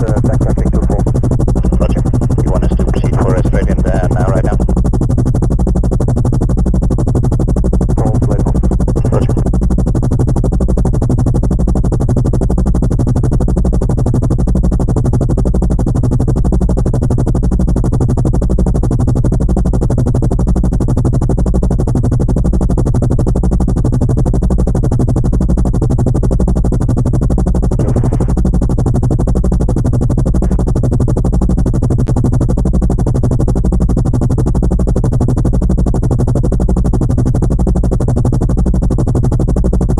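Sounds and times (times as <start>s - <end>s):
synthesized drone with fast pulse: 0.0s - 4.8s, 8.0s - 9.5s, 27.8s - 28.4s, 30.4s - 30.7s.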